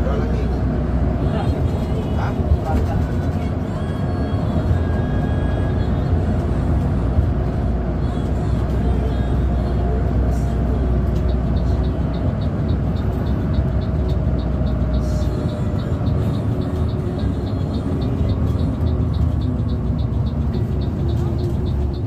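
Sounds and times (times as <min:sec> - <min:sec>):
bus engine and road rumble: 0:00.0 - 0:22.0
light regular ticking: 0:05.8 - 0:22.0.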